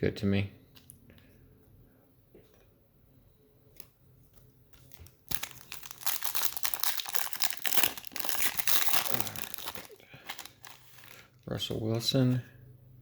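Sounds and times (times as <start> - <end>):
card pack wrapper tearing: 4.8 - 11.3.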